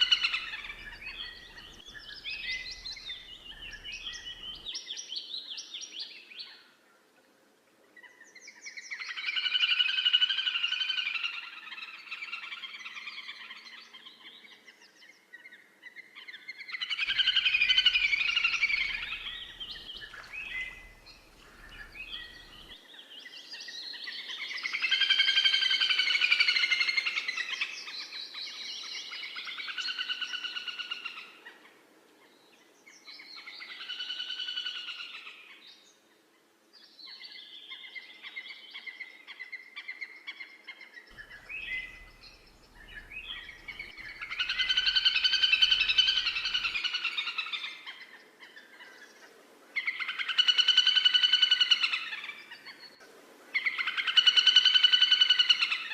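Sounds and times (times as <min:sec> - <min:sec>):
birds singing trilled phrases: 0:00.0 - 0:05.4, 0:16.4 - 0:26.6, 0:39.6 - 0:48.7.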